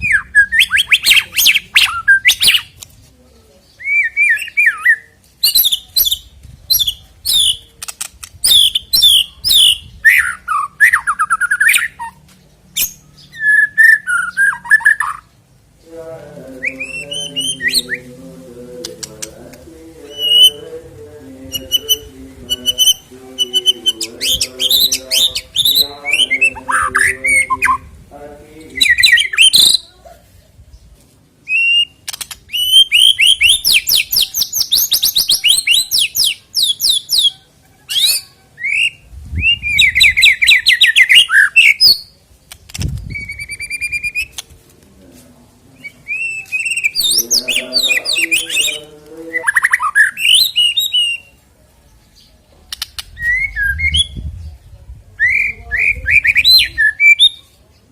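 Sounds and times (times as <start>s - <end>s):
songbird singing trills and whistles: 0.0s - 2.8s, 3.7s - 15.3s, 16.6s - 18.1s, 20.0s - 20.6s, 21.5s - 27.9s, 28.7s - 29.9s, 30.8s - 44.4s, 45.8s - 51.4s, 52.2s - 57.6s
bird harsh chattering: 20.1s - 20.6s, 46.1s - 51.3s.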